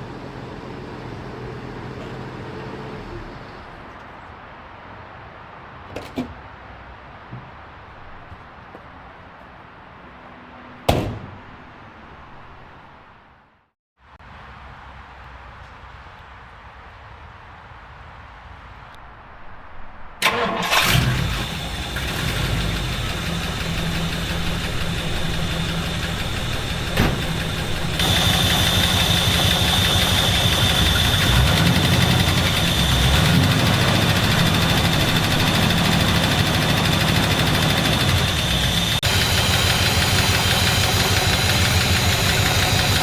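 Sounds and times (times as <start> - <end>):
car engine starting and running: 20.2 - 43.0.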